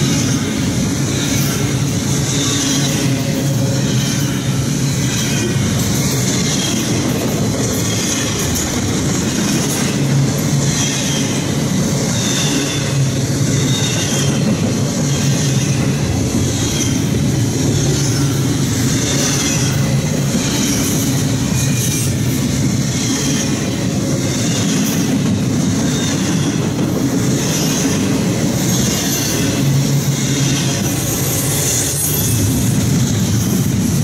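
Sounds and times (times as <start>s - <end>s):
freight train wheels rumbling: 0.0s - 34.0s
high wheel squeal: 27.4s - 32.8s.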